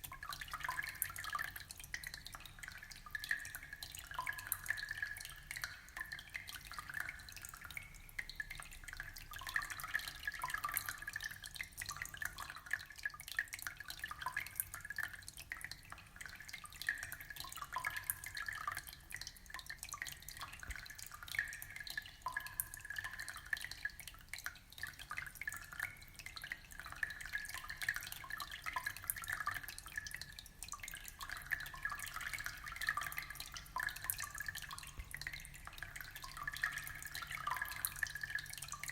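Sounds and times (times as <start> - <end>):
aquarium water bubbling: 0.0 - 38.9.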